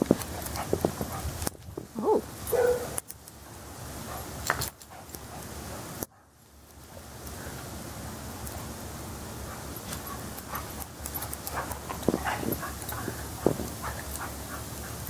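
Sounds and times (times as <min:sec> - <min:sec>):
collar tags jingling: 0:00.0 - 0:05.4, 0:09.5 - 0:15.0
dog yelping: 0:02.0 - 0:03.0.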